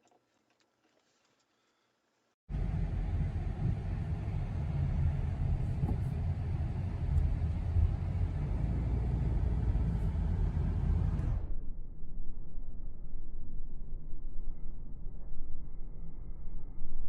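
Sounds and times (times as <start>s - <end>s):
road noise: 2.5s - 11.5s
car engine rumble: 2.5s - 16.7s.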